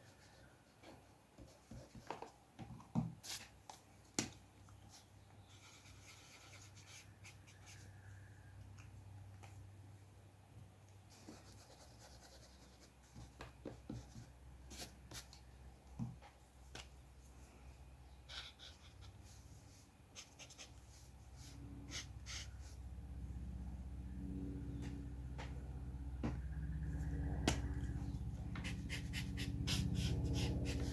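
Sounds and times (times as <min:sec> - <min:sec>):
steady low hum: 0:14.0 - 0:30.9
drawing tool scratching paper: 0:28.6 - 0:30.9.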